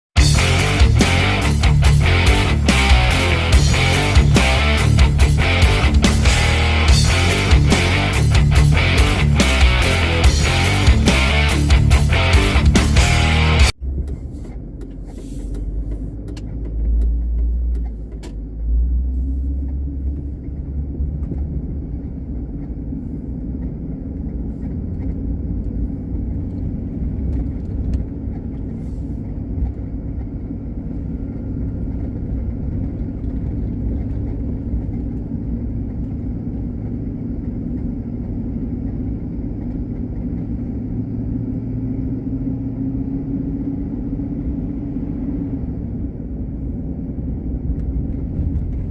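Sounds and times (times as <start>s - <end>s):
car engine and road noise: 0.1s - 48.9s
low thumps and clicks: 0.2s - 18.6s.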